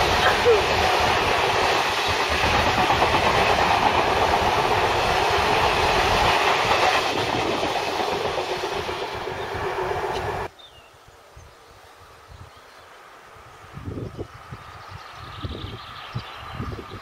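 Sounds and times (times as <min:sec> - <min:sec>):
freight train wheels on rails: 0:00.0 - 0:10.5.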